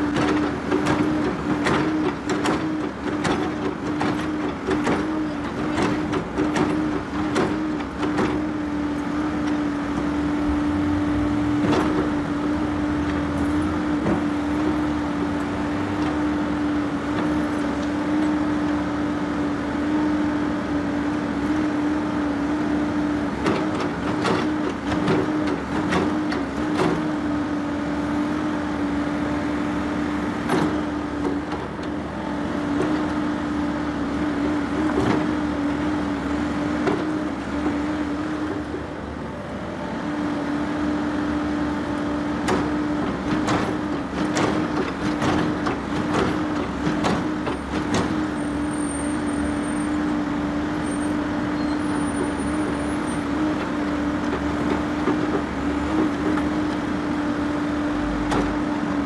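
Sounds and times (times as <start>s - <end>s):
heavy vehicle droning hum: 0.0s - 59.0s.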